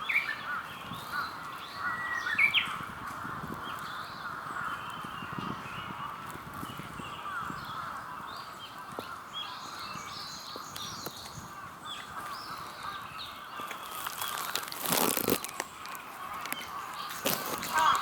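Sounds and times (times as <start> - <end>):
birds chirping: 0.0 - 18.0
harsh bird call: 16.2 - 18.0.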